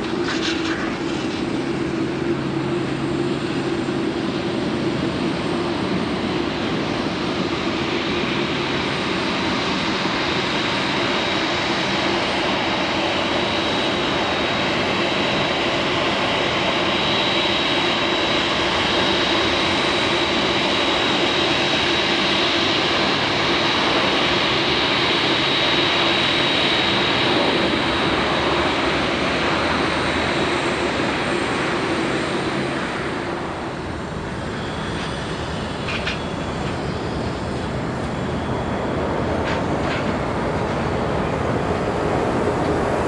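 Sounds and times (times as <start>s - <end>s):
jet engines rushing: 0.0s - 43.0s
high fan whine: 32.5s - 43.0s.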